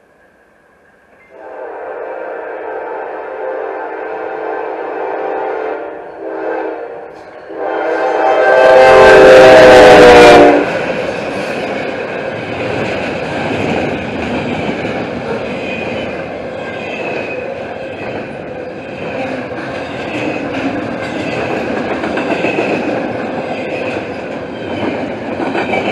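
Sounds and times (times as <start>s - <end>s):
locomotive air horn: 1.3s - 10.7s.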